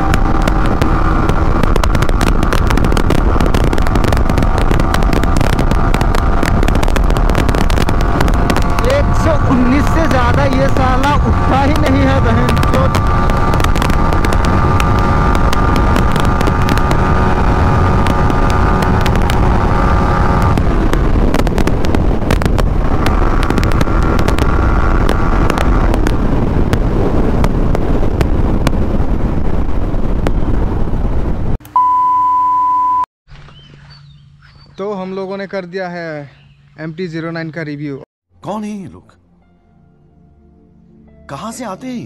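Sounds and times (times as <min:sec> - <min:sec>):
motorcycle engine at high revs: 0:00.0 - 0:30.9
wind rush on microphone: 0:00.0 - 0:31.6
test-pattern beep: 0:31.7 - 0:33.1.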